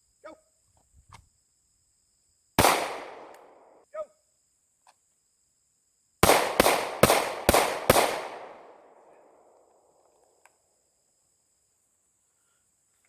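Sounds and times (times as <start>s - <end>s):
pistol shots with echo: 2.6s - 3.7s, 6.2s - 9.6s.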